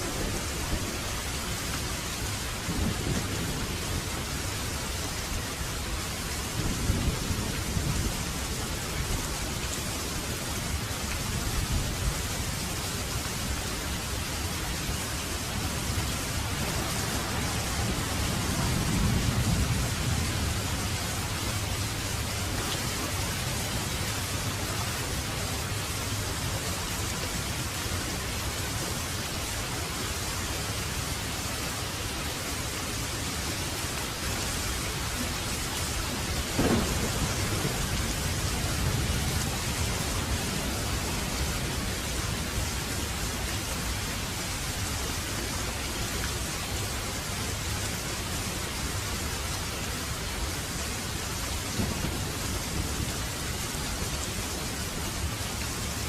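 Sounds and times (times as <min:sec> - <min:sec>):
thunderclap rumbling: 0:00.0 - 0:05.0, 0:05.8 - 0:09.4, 0:13.4 - 0:24.7, 0:35.0 - 0:43.1, 0:51.7 - 0:53.3
heavy rain falling: 0:00.0 - 0:56.0.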